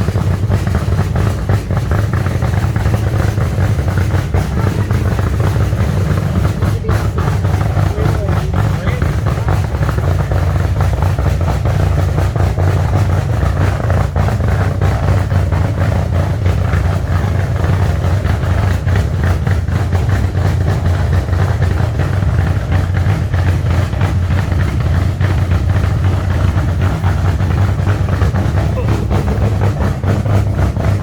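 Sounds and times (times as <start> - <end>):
loud car engine idling: 0.0 - 31.0.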